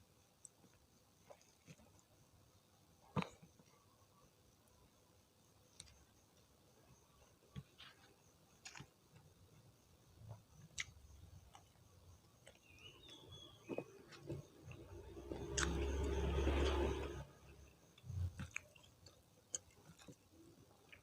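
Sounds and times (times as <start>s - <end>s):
wet chewing: 12.4s - 16.1s, 18.0s - 21.0s.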